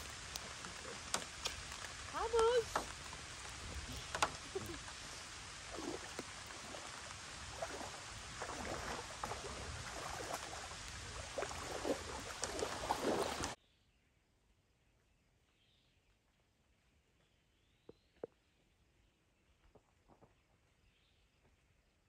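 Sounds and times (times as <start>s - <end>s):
light rain hiss: 0.0s - 13.6s
water sloshing around legs: 0.0s - 13.6s.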